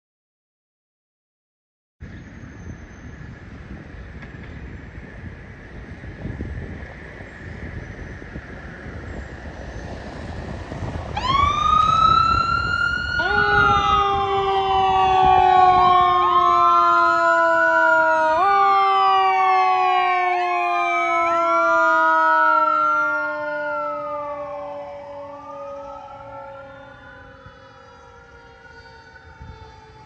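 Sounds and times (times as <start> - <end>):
fire engine sirens: 3.1 - 30.0
low vehicle rumble: 3.3 - 16.8.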